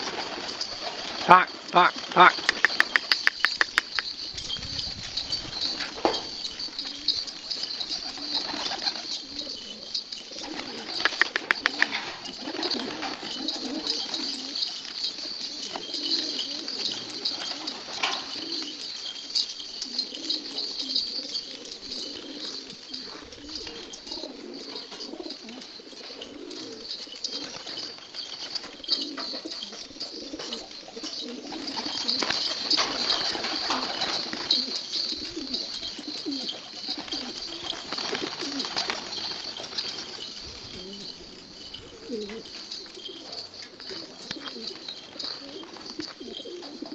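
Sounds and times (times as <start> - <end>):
pigeons cooing: 0.0 - 46.9
wing flaps clattering: 2.0 - 9.3, 31.3 - 42.5.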